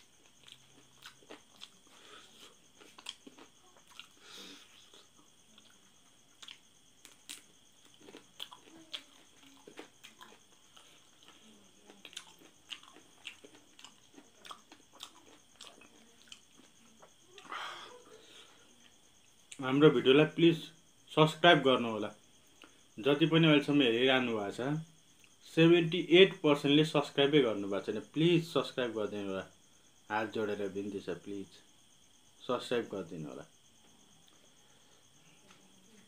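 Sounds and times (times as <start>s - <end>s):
wet chewing smacks and clicks: 0.2s - 1.8s, 2.8s - 4.2s, 4.9s - 17.1s
small crunches: 6.4s - 16.8s.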